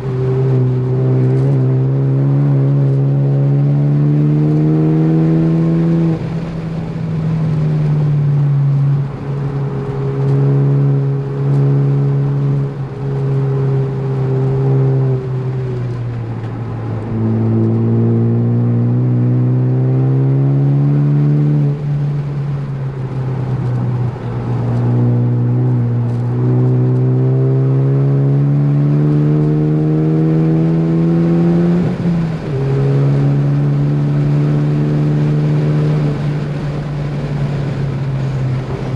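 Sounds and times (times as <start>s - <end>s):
car engine revving and shifting: 0.0s - 38.9s.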